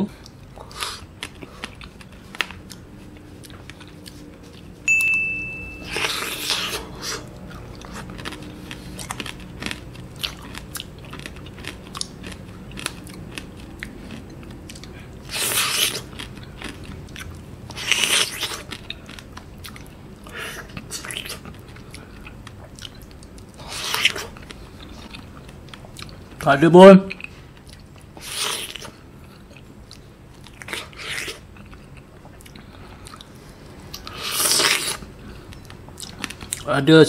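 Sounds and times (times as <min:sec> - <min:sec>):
loud crunchy bites: 0:06.0 - 0:18.9, 0:34.0 - 0:35.1.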